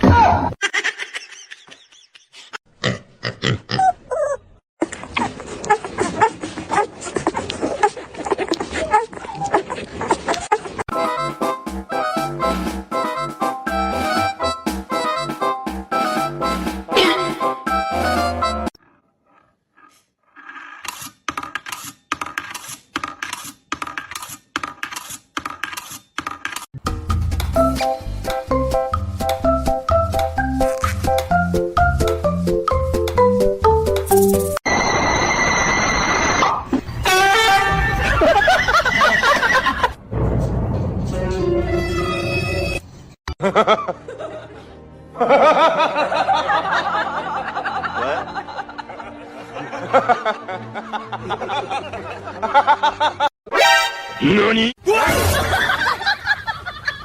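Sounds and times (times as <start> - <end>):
person laughing hard: 16.9 - 17.5, 37.7 - 39.9.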